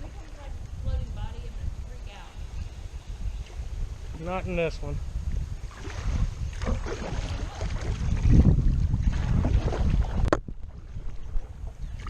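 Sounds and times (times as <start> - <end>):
wind rumbling on microphone: 0.0 - 12.0
paddle strokes splashing in water: 5.6 - 12.0.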